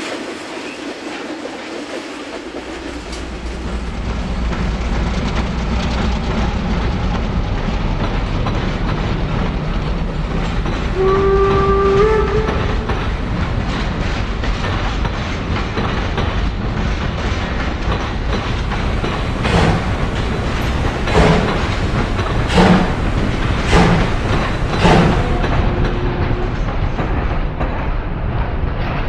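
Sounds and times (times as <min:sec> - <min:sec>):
steam locomotive rumbling: 0:00.0 - 0:29.0
train whistle blast: 0:11.0 - 0:12.9.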